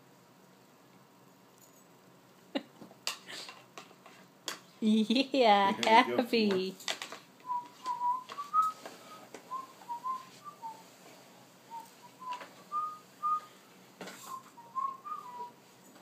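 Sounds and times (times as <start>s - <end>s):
person whistling a tune: 7.4s - 10.8s, 11.7s - 13.6s, 14.3s - 15.6s.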